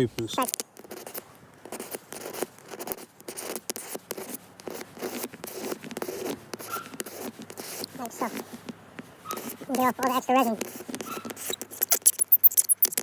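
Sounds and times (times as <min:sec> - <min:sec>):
razor blade scraping glass: 0:00.4 - 0:08.6, 0:09.2 - 0:13.0.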